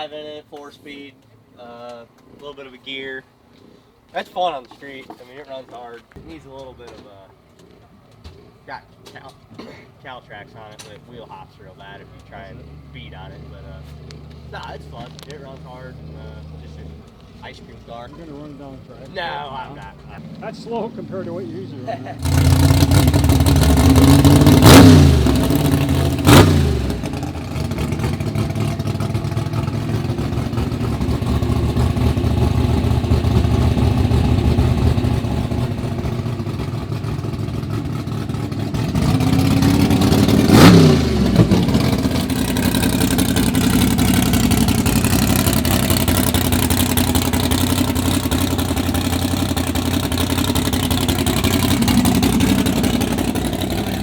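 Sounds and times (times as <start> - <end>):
car engines rumbling: 0.0 - 54.0.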